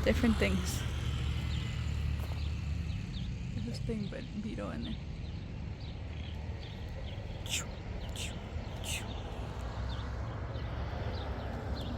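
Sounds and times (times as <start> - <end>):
soft bird chirps: 4.7 - 11.9.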